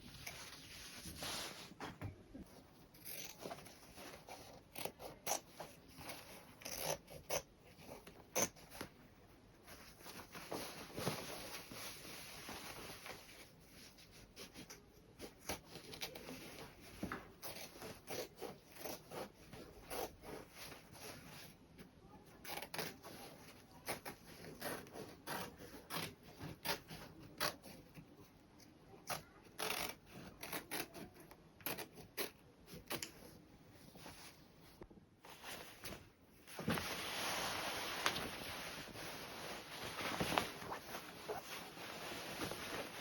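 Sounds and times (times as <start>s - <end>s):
cloth rustling: 0.0s - 4.8s, 7.9s - 14.7s, 33.2s - 43.0s.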